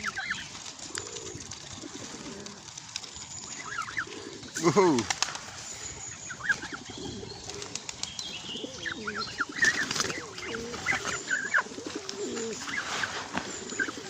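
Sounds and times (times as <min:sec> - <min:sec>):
goslings peeping: 0:00.0 - 0:00.5, 0:03.4 - 0:05.0, 0:05.8 - 0:14.0
pigeons cooing: 0:00.0 - 0:14.0
wings flapping: 0:00.0 - 0:14.0.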